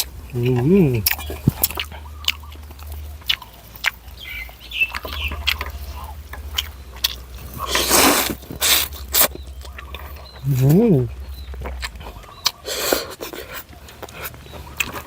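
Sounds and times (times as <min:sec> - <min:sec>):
chewing with wet mouth clicks: 0:00.0 - 0:15.0.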